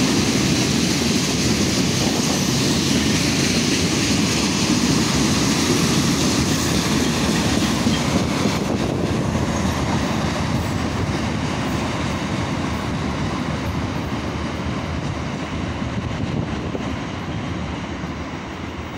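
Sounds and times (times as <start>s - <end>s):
train wheels rumbling on rails: 0.0s - 18.9s.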